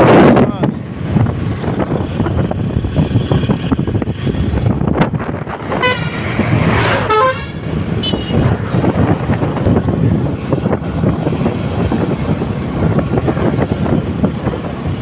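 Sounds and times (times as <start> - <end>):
road vehicle rumble: 0.0 - 15.0
vehicle horn honking: 5.7 - 6.4, 7.0 - 8.4.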